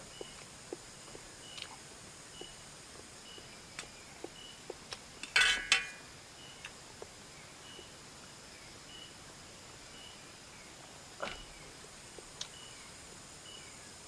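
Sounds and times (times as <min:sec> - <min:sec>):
utensil clinking against dish: 0:05.2 - 0:06.0.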